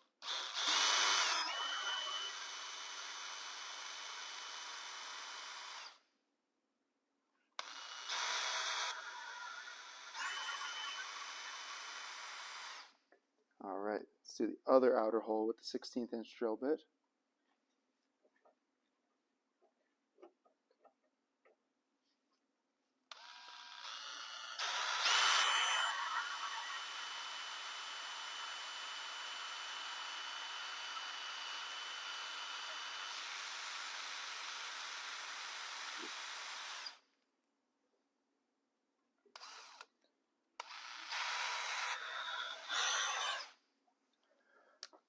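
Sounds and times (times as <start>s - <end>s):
power drill whining: 0.2s - 6.0s, 7.6s - 13.0s, 23.1s - 37.1s, 39.3s - 40.0s, 40.6s - 43.6s.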